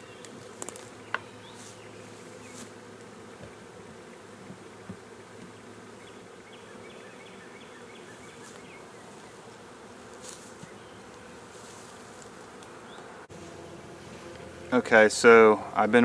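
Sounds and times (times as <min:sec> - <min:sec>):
honey bees humming: 0:00.0 - 0:16.0.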